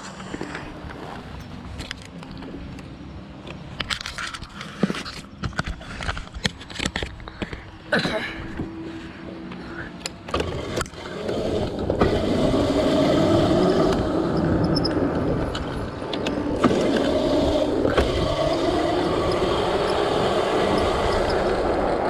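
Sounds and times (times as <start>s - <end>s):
tyre noise: 9.5s - 22.0s
electric motor whine: 10.3s - 22.0s.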